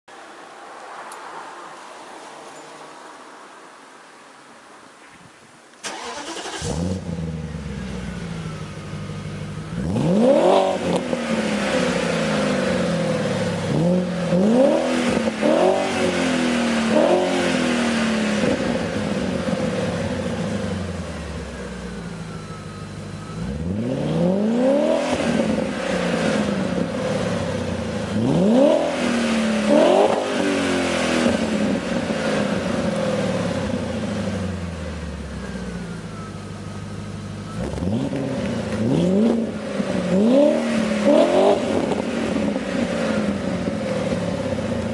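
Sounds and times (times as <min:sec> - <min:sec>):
car engine idling: 0:05.8 - 0:10.1, 0:31.5 - 0:44.9
car engine revving: 0:05.8 - 0:21.8, 0:23.2 - 0:35.8, 0:37.5 - 0:44.9.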